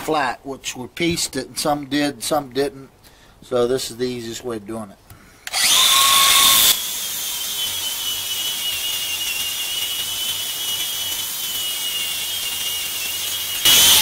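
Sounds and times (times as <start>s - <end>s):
angle grinder whining on wood: 5.5s - 14.0s.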